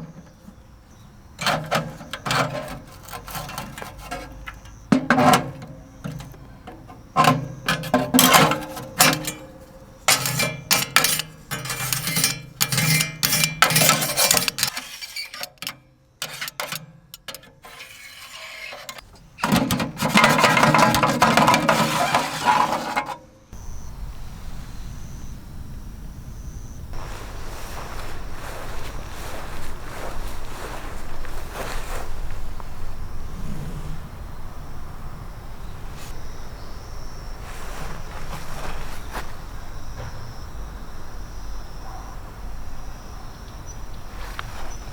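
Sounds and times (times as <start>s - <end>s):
metal objects clinking: 1.4s - 17.8s
steady low rushing noise: 32.4s - 36.1s.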